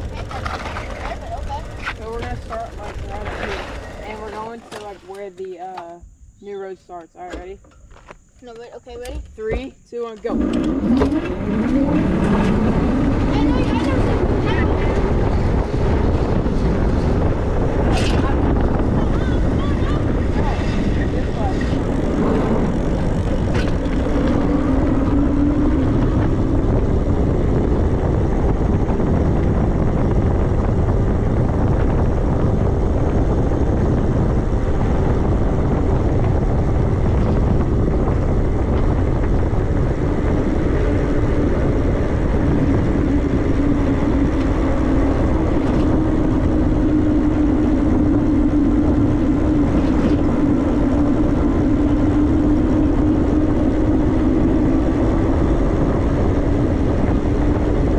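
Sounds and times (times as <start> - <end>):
electric motor whine: 0.0 - 5.4, 7.4 - 57.9
rushing wind and road noise: 0.0 - 57.9.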